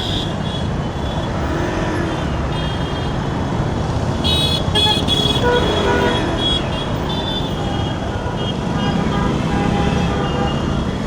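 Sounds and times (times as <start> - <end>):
city traffic: 0.0 - 11.0
vehicle horns honking: 4.2 - 11.0.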